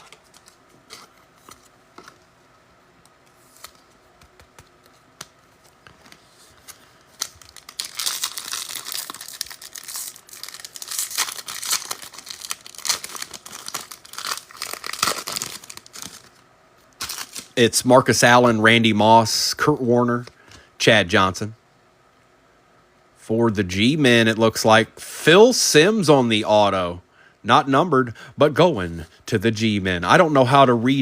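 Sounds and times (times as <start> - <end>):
foil wrapper crinkling: 5.7 - 16.4, 17.0 - 17.6.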